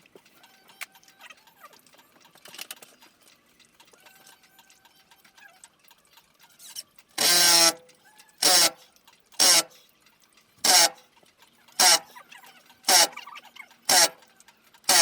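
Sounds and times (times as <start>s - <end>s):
hand saw cutting wood: 7.2s - 7.8s, 8.4s - 8.8s, 9.4s - 9.8s, 10.6s - 11.0s, 11.8s - 12.1s, 12.9s - 13.2s, 13.9s - 14.2s.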